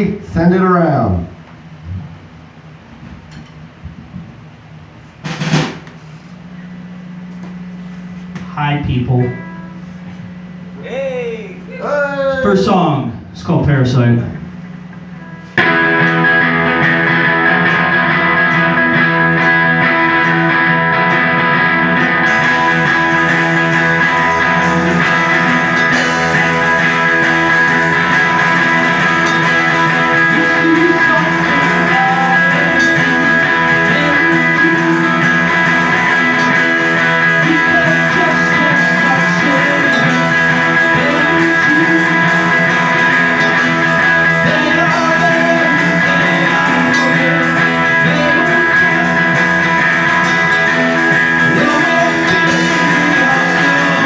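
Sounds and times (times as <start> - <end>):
live rock band playing: 5.2 - 6.1, 14.2 - 54.0.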